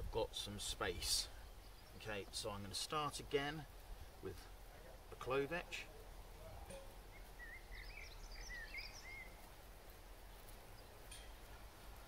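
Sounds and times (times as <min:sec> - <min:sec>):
faint outdoor background noise: 0:00.0 - 0:12.0
bird chirping: 0:00.8 - 0:03.6, 0:06.5 - 0:09.6.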